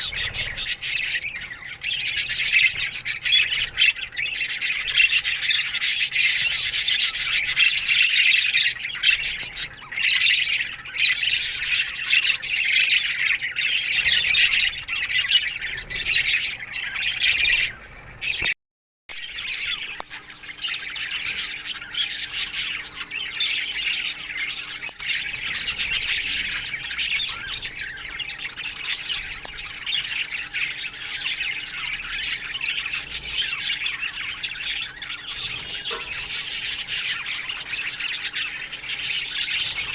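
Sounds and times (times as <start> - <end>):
budgerigars chattering and squawking: 0.0 - 18.5, 19.2 - 39.9.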